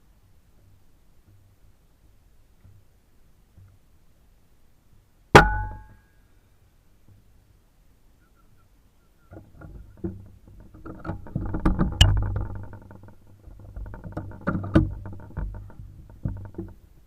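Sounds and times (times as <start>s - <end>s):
sharp knocks: 5.4s - 6.0s.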